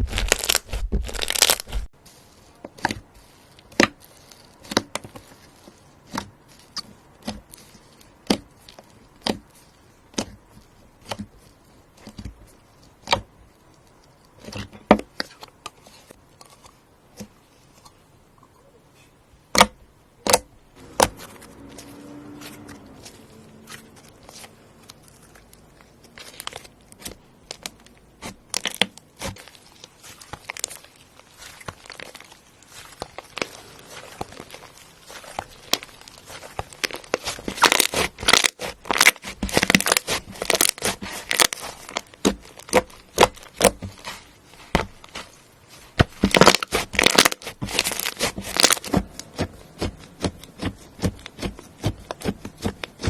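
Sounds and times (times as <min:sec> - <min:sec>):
slime crackling pops: 0:00.0 - 0:01.8, 0:30.2 - 0:45.2, 0:46.0 - 0:53.0.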